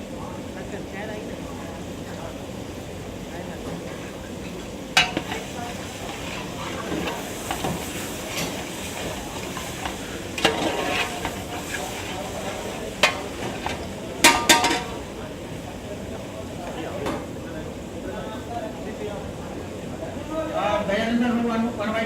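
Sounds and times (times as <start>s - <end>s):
food sizzling in a pot: 0.5s - 16.8s
metal ladle clanking on pot: 4.9s - 15.1s.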